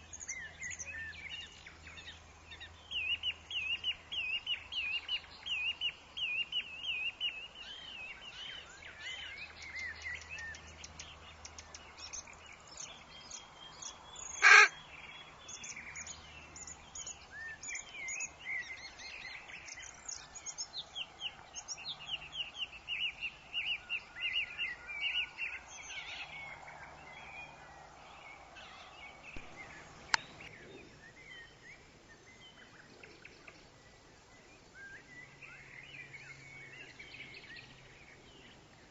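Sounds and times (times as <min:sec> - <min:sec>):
birds chirping and trilling: 0:00.0 - 0:38.9
loud harsh bird call: 0:14.3 - 0:14.8.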